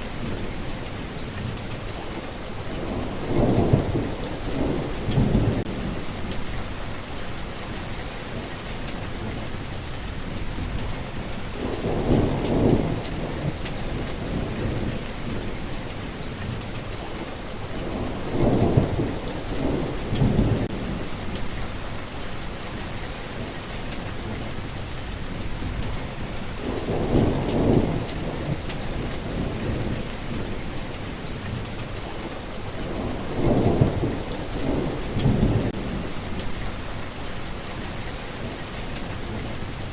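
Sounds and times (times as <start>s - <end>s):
heavy rain falling: 0.0s - 39.9s
thunder rolling: 2.7s - 7.0s, 10.3s - 15.6s, 17.7s - 21.9s, 25.3s - 30.7s, 32.7s - 37.0s.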